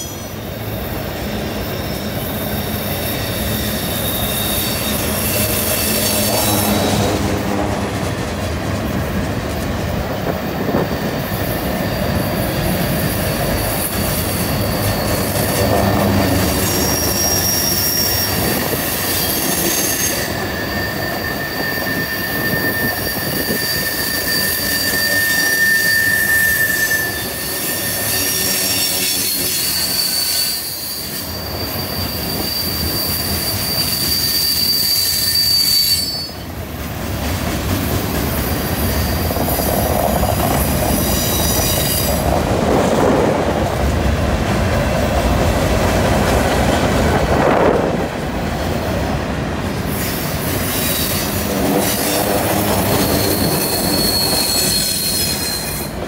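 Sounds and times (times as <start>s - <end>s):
wheel flange squeal: 0.0s - 7.3s, 10.2s - 36.6s, 37.8s - 42.4s, 49.9s - 56.0s
train wheels rumbling on rail: 0.0s - 56.0s.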